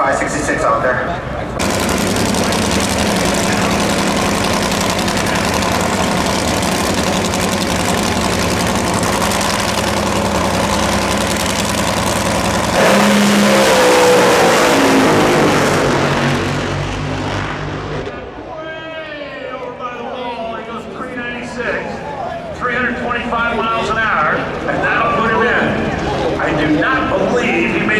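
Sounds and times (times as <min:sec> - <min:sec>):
drag racing car engine at full throttle: 0:01.4 - 0:18.5.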